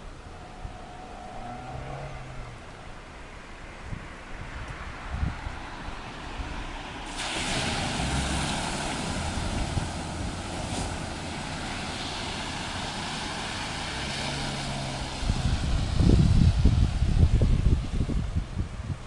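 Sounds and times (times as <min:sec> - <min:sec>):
floodwater rushing: 0:05.7 - 0:18.0.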